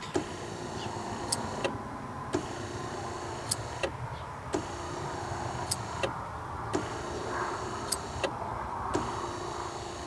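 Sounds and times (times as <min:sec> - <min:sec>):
sharp motor click: 0:00.0 - 0:08.4
wiper motor humming: 0:06.7 - 0:08.4.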